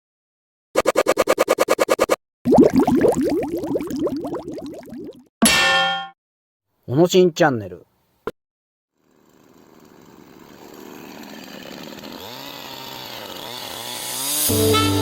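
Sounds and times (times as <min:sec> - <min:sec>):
chainsaw engine revving: 0:09.0 - 0:15.0
music: 0:14.5 - 0:15.0.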